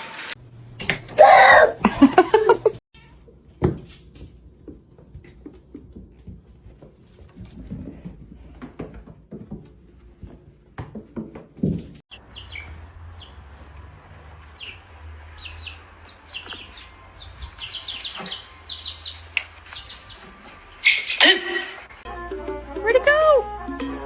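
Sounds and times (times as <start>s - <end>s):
small bird chirping: 12.1s - 13.4s, 15.4s - 21.2s.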